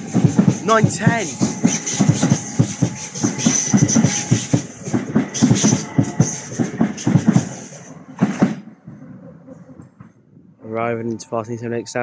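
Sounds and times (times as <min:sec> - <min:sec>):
train wheels clattering over joints: 0:00.0 - 0:09.0.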